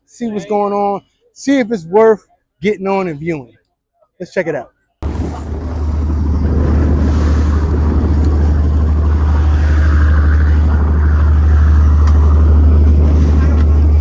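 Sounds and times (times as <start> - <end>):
motorboat engine running: 5.0 - 14.0
wind buffeting microphone: 5.0 - 14.0.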